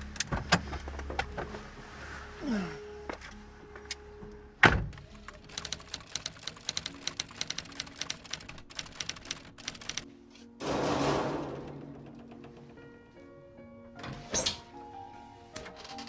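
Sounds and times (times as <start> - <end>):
heavy thunk: 10.6 - 12.9.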